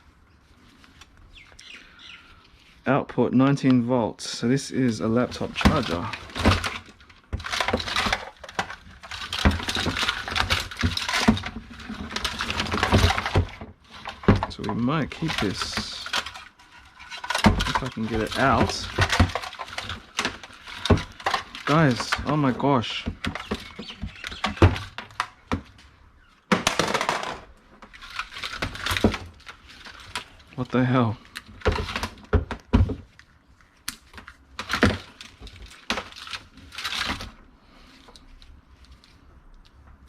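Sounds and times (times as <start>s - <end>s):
rummaging cords and plastic items: 4.7s - 40.0s
rustling scrape: 4.8s - 24.6s.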